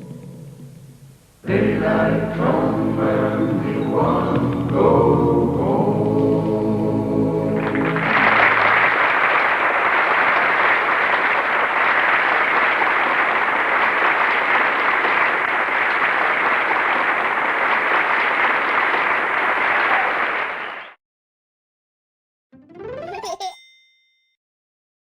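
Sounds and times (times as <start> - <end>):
audience applauding: 7.6 - 21.0.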